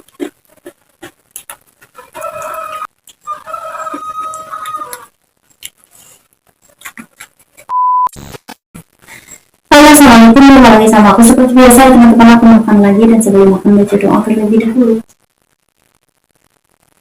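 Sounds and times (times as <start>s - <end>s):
rooster crowing: 2.0s - 5.1s.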